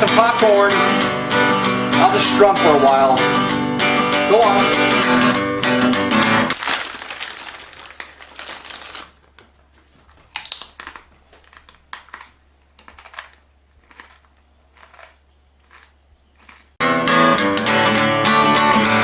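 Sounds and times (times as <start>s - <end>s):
low electrical hum: 6.5s - 16.8s.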